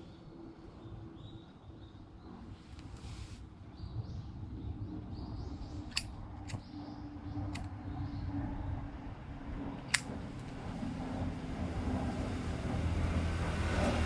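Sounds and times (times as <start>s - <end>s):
sharp clicks: 5.9s - 6.7s, 9.8s - 10.6s.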